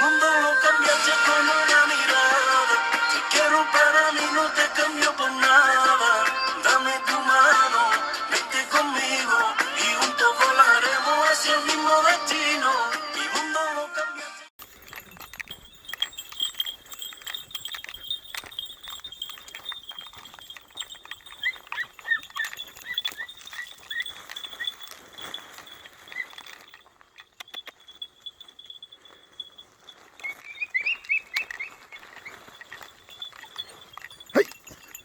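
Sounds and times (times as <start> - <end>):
clicks and rustles: 14.6 - 35.0
puppies yelping: 14.9 - 26.7.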